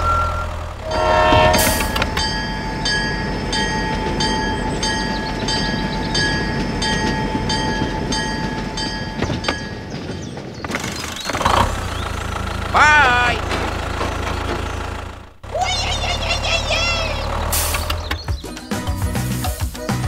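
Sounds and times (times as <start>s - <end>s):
steady tone: 0.0s - 5.2s
crossing bell ringing: 0.0s - 10.6s
train rumble: 0.0s - 19.6s.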